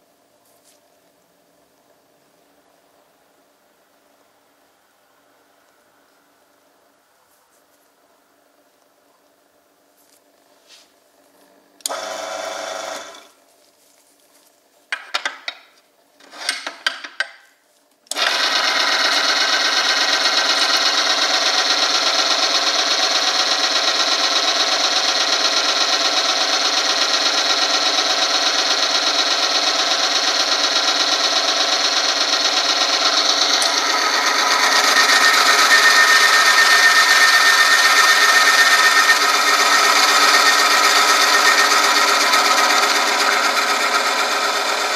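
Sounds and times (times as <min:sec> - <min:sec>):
machine whirring and scraping: 0:11.9 - 0:13.3, 0:18.1 - 0:24.1, 0:24.9 - 0:44.9.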